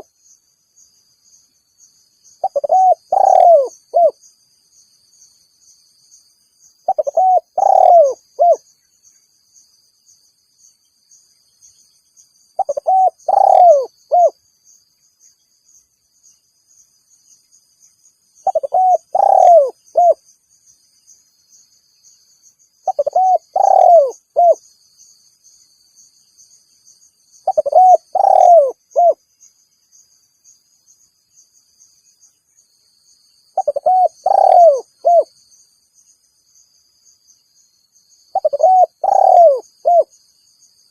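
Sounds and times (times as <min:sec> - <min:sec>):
dove cooing: 0:02.4 - 0:04.2, 0:06.9 - 0:08.6, 0:12.6 - 0:14.4, 0:18.4 - 0:20.2, 0:22.8 - 0:24.6, 0:27.4 - 0:29.2, 0:33.6 - 0:35.3, 0:38.3 - 0:40.1.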